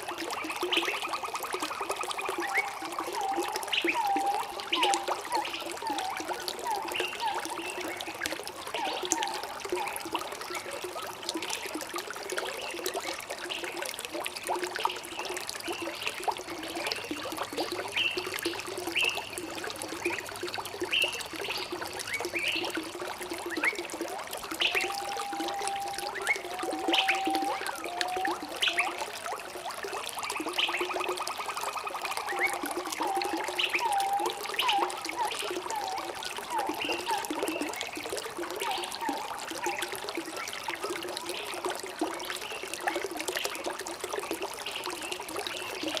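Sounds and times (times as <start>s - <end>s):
water trickling and gurgling: 0.0s - 46.0s
whistled bird note: 24.6s - 28.9s.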